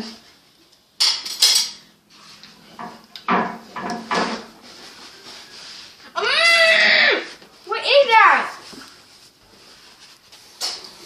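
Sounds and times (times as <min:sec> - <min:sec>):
cutlery clinking on dishes: 0:01.0 - 0:01.9.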